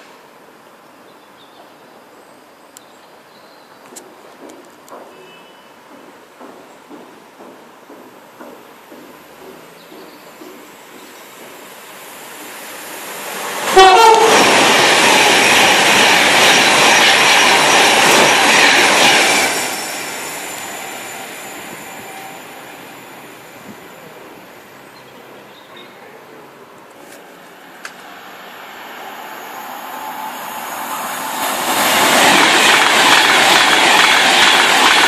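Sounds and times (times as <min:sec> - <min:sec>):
train passing at speed: 0:03.1 - 0:35.0
train horn: 0:05.1 - 0:05.7, 0:13.7 - 0:14.5.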